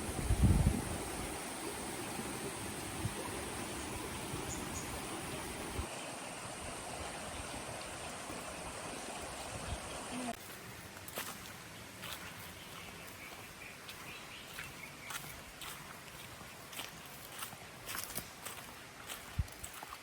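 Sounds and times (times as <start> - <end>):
stream flowing: 0.0 - 20.0.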